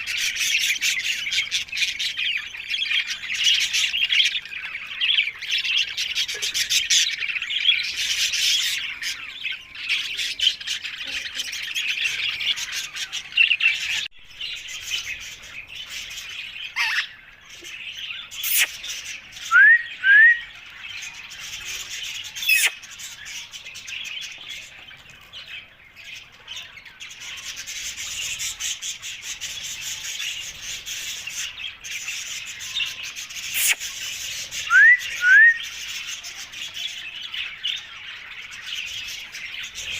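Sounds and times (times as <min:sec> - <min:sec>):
parakeet squawks: 0:16.7 - 0:17.2, 0:18.4 - 0:18.8, 0:22.4 - 0:22.8, 0:33.5 - 0:34.0
parakeet chattering: 0:16.8 - 0:17.1, 0:18.4 - 0:18.8, 0:22.4 - 0:22.8, 0:33.5 - 0:33.9.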